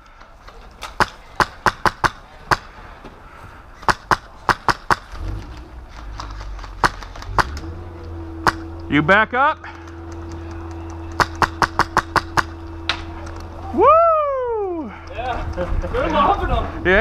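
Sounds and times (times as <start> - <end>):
airsoft gun shots: 0.9 - 2.7, 3.8 - 5.2, 6.7 - 7.6, 8.4 - 8.7, 11.1 - 13.1.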